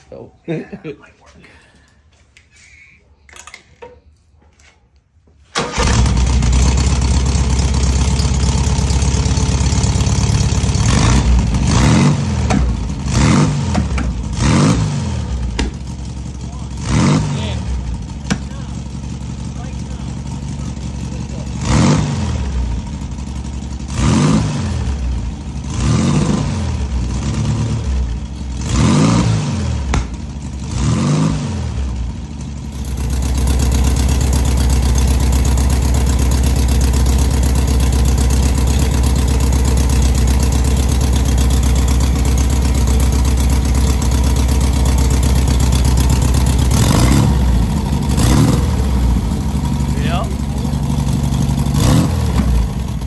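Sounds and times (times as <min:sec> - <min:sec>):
car engine revving: 0:05.6 - 0:32.2, 0:32.8 - 0:53.0.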